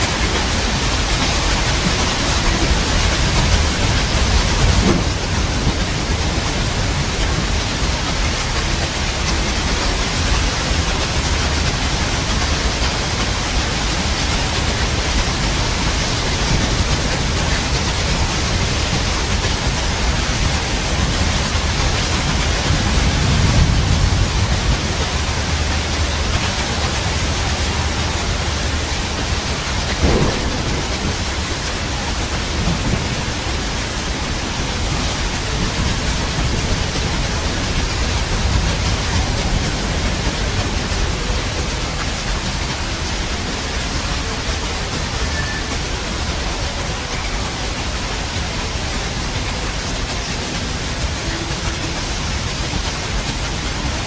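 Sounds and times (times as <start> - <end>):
heavy rain: 0.0 - 54.0
thunder rumbling: 0.0 - 54.0
sharp thunder crack: 3.2 - 6.3, 29.9 - 33.6.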